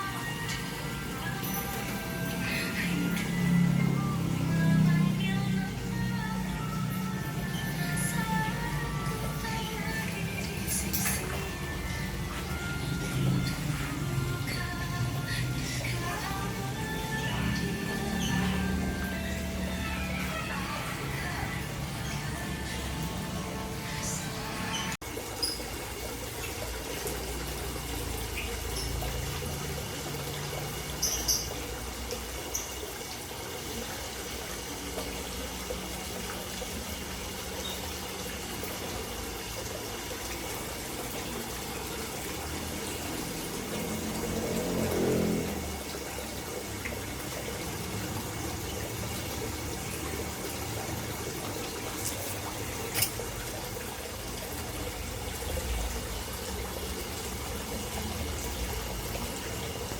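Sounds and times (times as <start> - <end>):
water trickling into a pond: 0.0 - 59.9.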